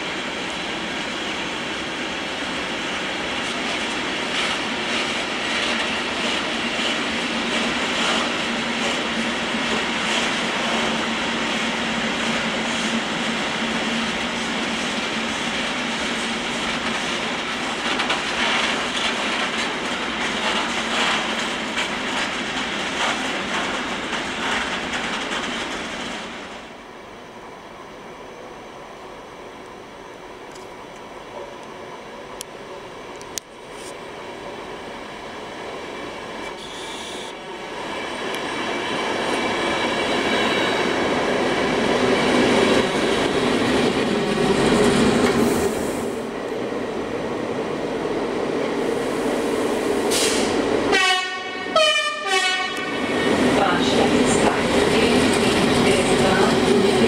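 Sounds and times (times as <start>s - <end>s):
freight train rolling past: 0.0s - 57.0s
wheels clicking over rail joints: 16.8s - 26.2s.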